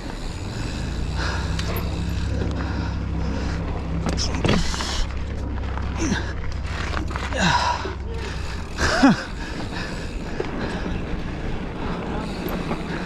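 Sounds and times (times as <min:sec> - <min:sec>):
bike rumbling on trail: 0:00.0 - 0:13.0
person breathing hard: 0:00.4 - 0:04.0, 0:05.9 - 0:13.0
gasping exhales: 0:00.4 - 0:05.2, 0:05.8 - 0:11.0.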